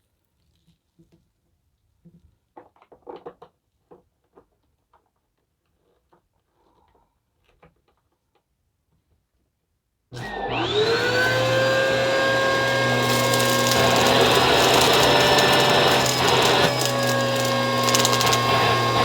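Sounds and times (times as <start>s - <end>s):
vacuum cleaner motor whine: 10.2s - 19.0s.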